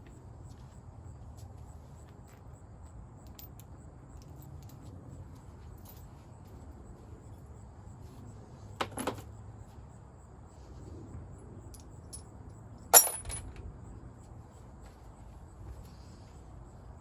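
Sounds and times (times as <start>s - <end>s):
metal tools clinking: 12.9s - 13.6s.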